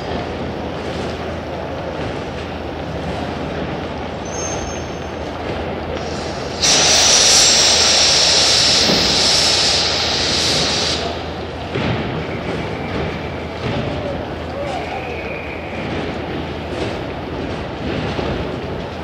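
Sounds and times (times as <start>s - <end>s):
train air hiss: 5.8s - 13.8s.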